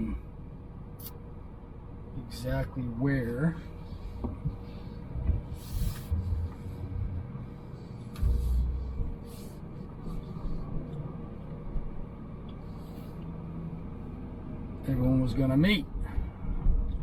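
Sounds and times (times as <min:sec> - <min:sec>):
car engine and road rumble: 0:00.0 - 0:17.0
low thumps: 0:04.2 - 0:09.3.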